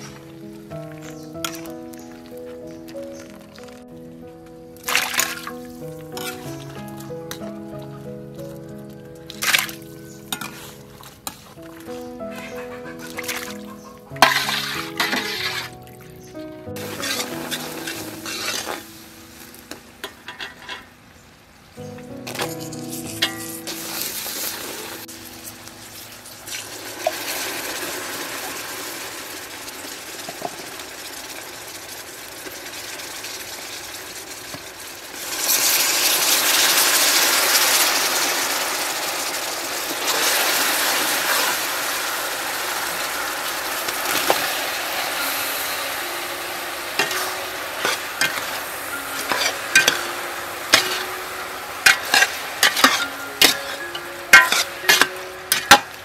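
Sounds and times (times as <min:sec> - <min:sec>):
caramel bubbling and sizzling in a pot: 0:13.4 - 0:15.8, 0:16.8 - 0:20.9, 0:22.3 - 0:56.0
metal ladle clinking against pot: 0:47.0 - 0:50.1, 0:50.7 - 0:51.1, 0:51.8 - 0:56.0.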